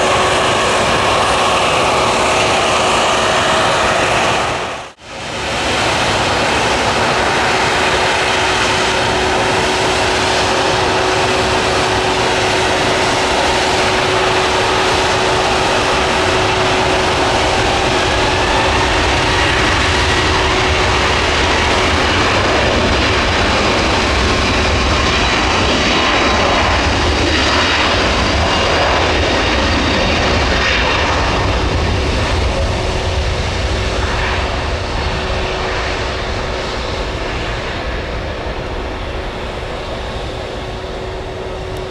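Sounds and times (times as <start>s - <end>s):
jet airliner engines roaring: 0.0s - 41.9s
steady hum: 33.2s - 41.9s.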